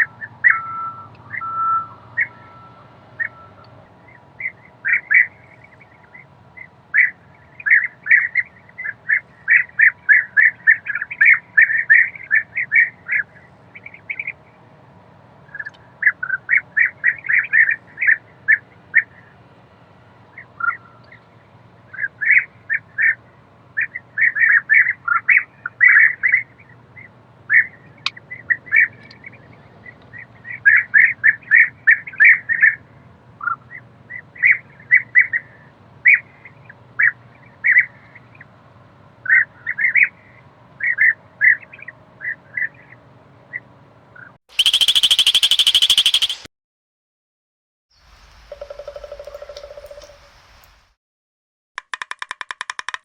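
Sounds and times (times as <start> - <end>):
small bird chirping: 39.2 - 46.5, 48.0 - 50.6
loud high-pitched sound: 44.5 - 46.5.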